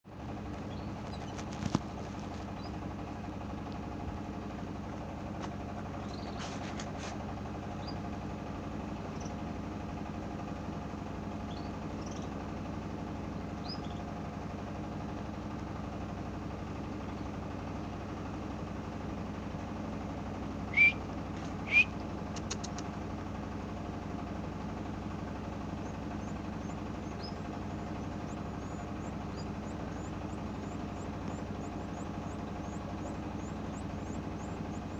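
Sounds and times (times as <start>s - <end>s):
low mechanical hum: 0.1s - 34.9s
canaries chirping: 0.6s - 2.8s, 6.0s - 7.1s, 7.7s - 8.1s, 9.1s - 9.4s, 11.4s - 12.4s, 13.4s - 14.1s, 20.7s - 22.8s, 25.4s - 34.9s.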